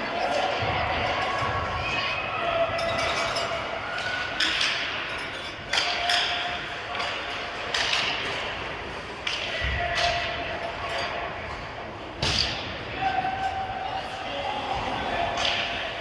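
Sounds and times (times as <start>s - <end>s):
hockey sticks and puck clacking: 2.8s - 11.6s, 14.8s - 16.0s.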